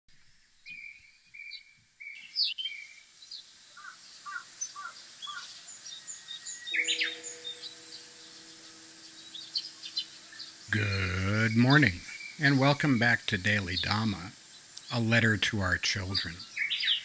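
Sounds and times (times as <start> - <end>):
birds calling and chirping: 0.5 - 17.0
steady low hum: 5.7 - 17.0.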